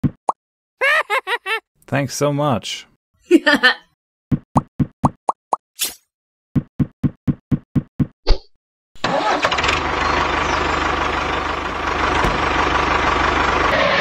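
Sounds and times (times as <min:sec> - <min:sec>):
engine starting and running: 0:09.0 - 0:14.0.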